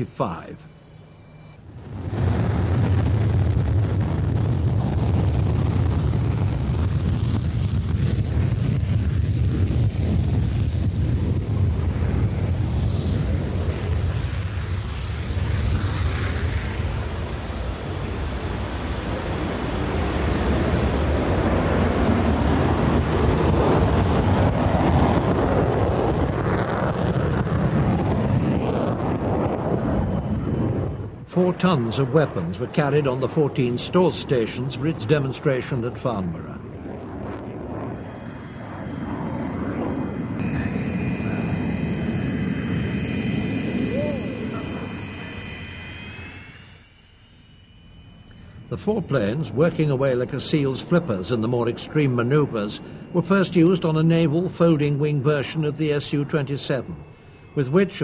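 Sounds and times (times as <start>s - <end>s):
steady high whine: 0.0s - 58.0s
jet engine rushing noise: 1.2s - 58.0s
wind buffeting microphone: 1.7s - 15.0s, 15.6s - 32.6s, 36.4s - 46.8s.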